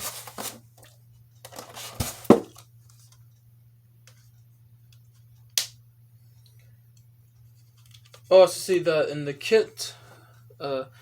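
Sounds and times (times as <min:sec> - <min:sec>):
packaging rustling: 0:00.0 - 0:00.6
faint low hum: 0:00.0 - 0:11.0.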